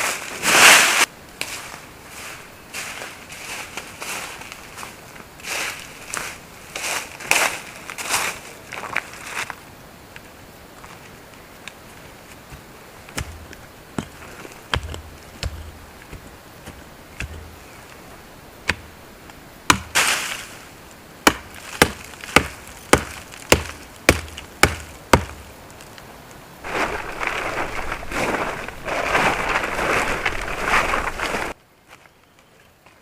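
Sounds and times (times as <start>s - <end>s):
rough rustling: 11.8s - 31.6s
axe chopping firewood: 12.5s - 17.6s, 18.6s - 18.9s, 19.7s - 20.2s, 21.2s - 25.5s.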